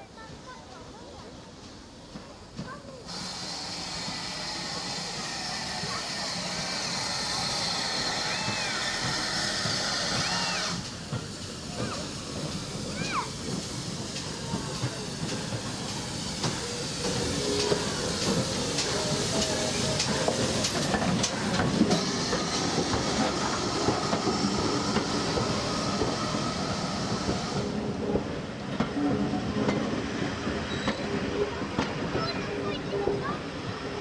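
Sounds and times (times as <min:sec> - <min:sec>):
train wheels clattering over rail joints: 0:01.7 - 0:29.0
wheel squeal: 0:30.7 - 0:31.2.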